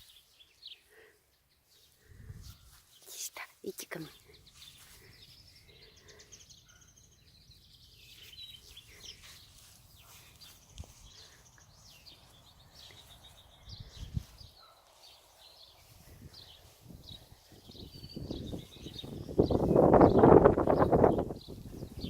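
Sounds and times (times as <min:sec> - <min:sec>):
small birds twittering: 0:00.0 - 0:22.0
wind rumble on microphone: 0:02.1 - 0:02.7, 0:13.7 - 0:14.6, 0:16.0 - 0:22.0.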